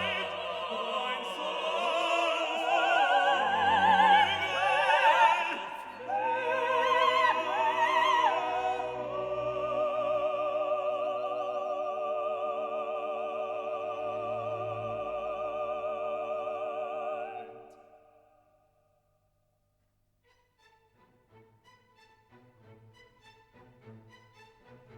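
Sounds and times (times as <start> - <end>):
operatic singing with orchestra: 0.0 - 18.3.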